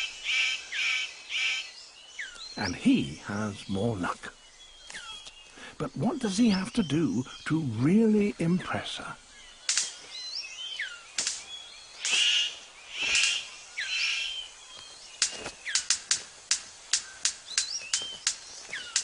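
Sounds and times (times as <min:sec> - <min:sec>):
bird harsh calls and whistles: 0:00.0 - 0:19.0
bird sharp clicks: 0:09.6 - 0:10.2, 0:10.8 - 0:19.0.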